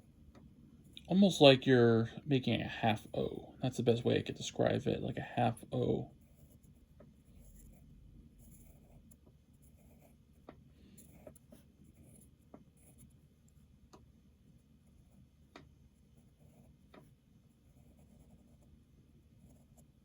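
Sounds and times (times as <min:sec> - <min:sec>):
pencil scratching on paper: 0:05.4 - 0:13.6, 0:16.0 - 0:20.0.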